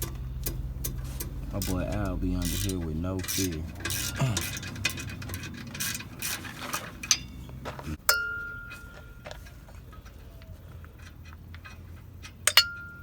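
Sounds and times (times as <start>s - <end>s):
metal parts and tools clinking: 0.0s - 13.0s
ringing metal strike: 8.1s - 9.2s.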